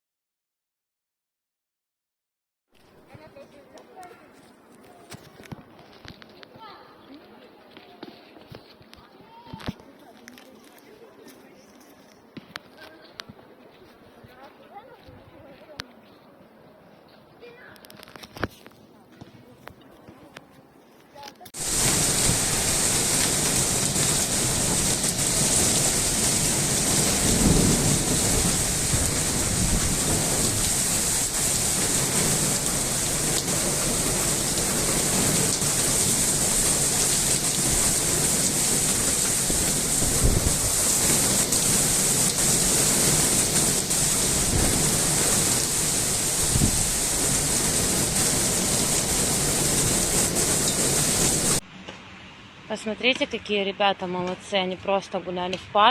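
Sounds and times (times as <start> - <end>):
heavy rain pouring: 21.6 - 51.6
low thunder rumbles: 21.6 - 51.6.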